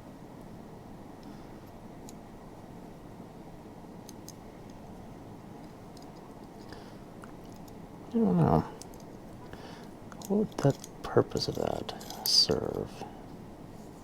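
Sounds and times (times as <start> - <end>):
faint background hum: 0.0 - 14.0
light clicks of small parts handled: 5.6 - 7.8, 8.8 - 13.4.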